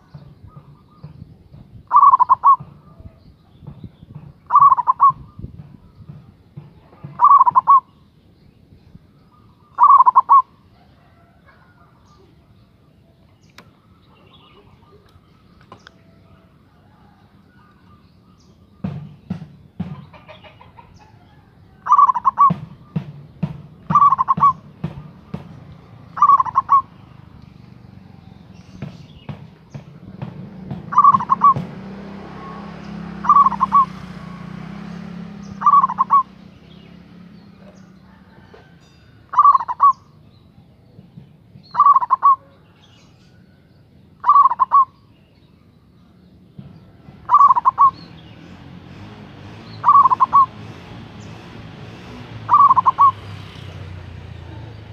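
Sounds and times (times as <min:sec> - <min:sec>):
dove cooing: 0:01.9 - 0:03.2, 0:04.5 - 0:05.4, 0:07.0 - 0:07.9, 0:09.7 - 0:12.2, 0:20.2 - 0:23.0, 0:23.9 - 0:25.4, 0:26.1 - 0:27.0, 0:30.7 - 0:31.7, 0:32.4 - 0:36.4, 0:39.3 - 0:40.1, 0:41.7 - 0:42.8, 0:44.2 - 0:45.0, 0:47.2 - 0:48.0, 0:49.8 - 0:50.7, 0:52.5 - 0:53.3.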